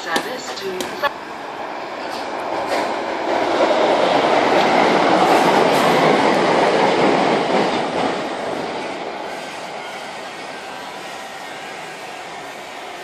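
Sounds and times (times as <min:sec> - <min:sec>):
electric train passing: 0:00.0 - 0:13.0.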